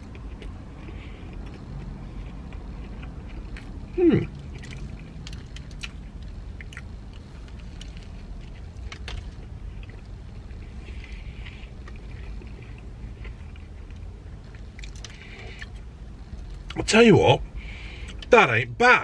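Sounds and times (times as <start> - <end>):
man chewing crunchy sandwich: 0.0 - 16.8
low rumble inside van: 0.0 - 19.0.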